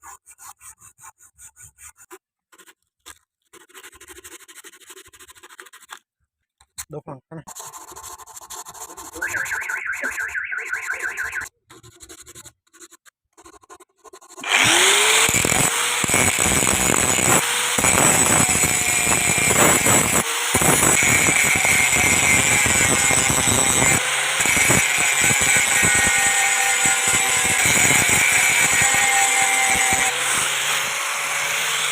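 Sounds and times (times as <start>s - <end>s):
power tool grinding steel: 14.4s - 31.9s.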